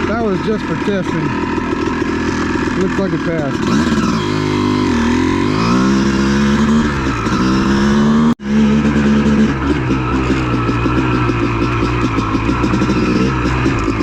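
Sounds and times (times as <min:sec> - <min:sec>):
dirt bike engine running: 0:00.0 - 0:14.0.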